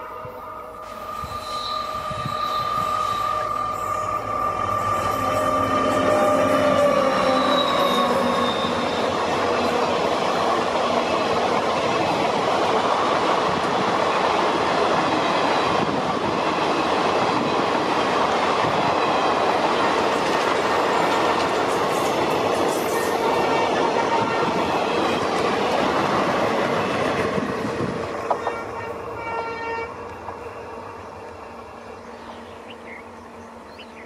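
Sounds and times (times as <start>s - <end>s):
diesel locomotive engine: 0.0s - 34.0s
train wheels rushing rumble: 0.0s - 34.0s.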